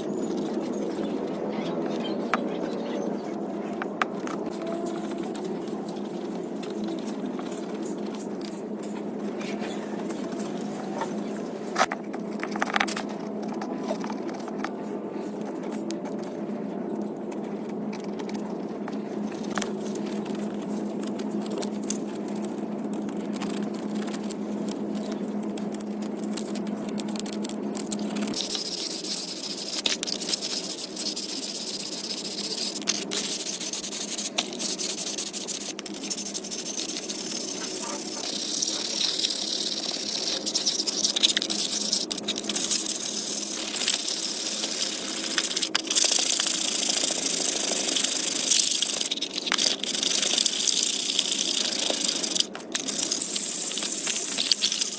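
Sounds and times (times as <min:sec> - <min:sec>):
mechanical hum: 0:00.0 - 0:54.9
clicks and scrapes of work: 0:03.6 - 0:16.4.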